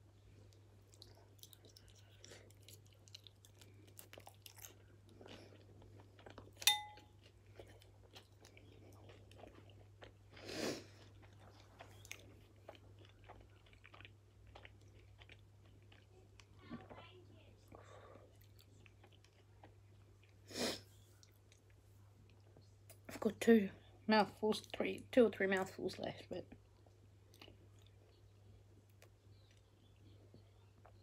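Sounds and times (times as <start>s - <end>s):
chewing and mouth sounds: 0.2s - 23.0s, 26.5s - 31.0s
spoon clinking on ceramic bowl: 6.6s - 7.1s.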